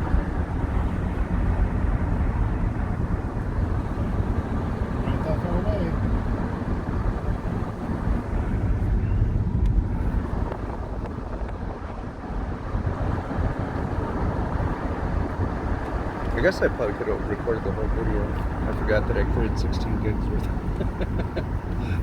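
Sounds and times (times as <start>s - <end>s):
vehicle cabin road and engine rumble: 0.0s - 22.0s.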